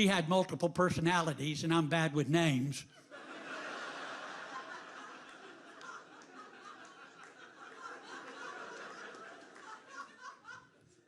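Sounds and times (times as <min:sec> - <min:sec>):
audience laughing: 0:02.9 - 0:11.0.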